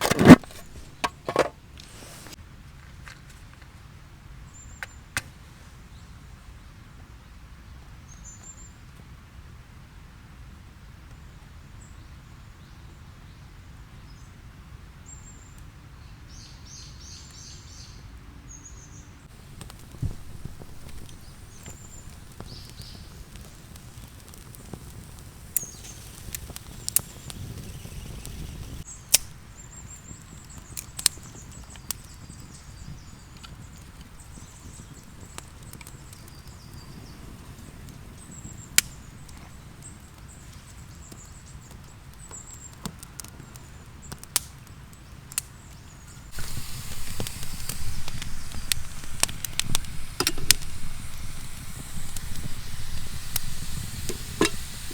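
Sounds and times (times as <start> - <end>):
campfire crackling and popping: 0.0 - 2.4, 19.3 - 54.9
small birds calling: 16.3 - 42.8, 45.0 - 54.9
food sizzling in a pan: 19.3 - 28.9, 46.3 - 54.9.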